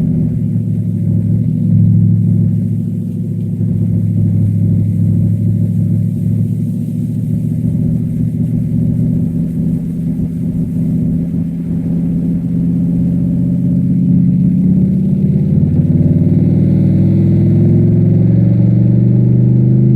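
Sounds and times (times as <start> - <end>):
car engine accelerating: 0.0 - 19.9.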